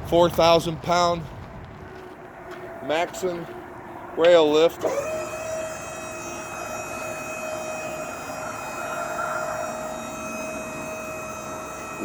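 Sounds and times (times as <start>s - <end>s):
hydraulic pump motor whine: 4.8s - 12.0s.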